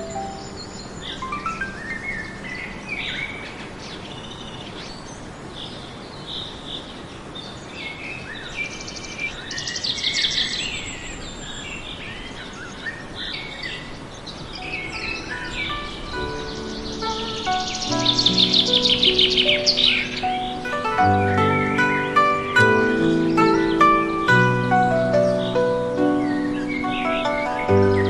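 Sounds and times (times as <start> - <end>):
birds chirping and calling: 0.0 - 28.0
steady background hiss: 0.0 - 28.0
fast buzzy bird trill: 14.6 - 28.0.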